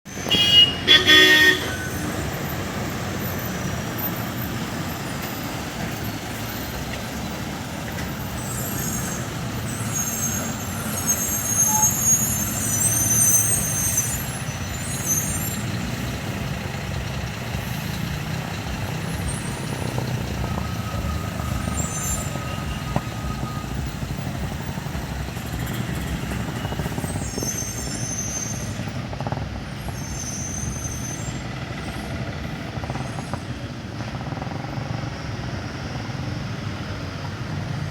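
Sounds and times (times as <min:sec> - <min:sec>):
heavy lorry engines rumbling: 0:00.0 - 0:37.9
loud horn: 0:00.1 - 0:02.4.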